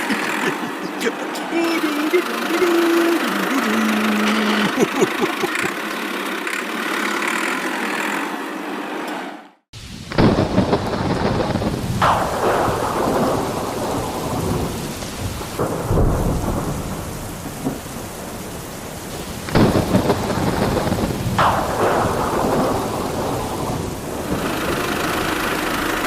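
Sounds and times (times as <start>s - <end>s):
steady rain: 0.0s - 9.2s, 9.8s - 26.0s
thunder crashes: 9.8s - 24.8s.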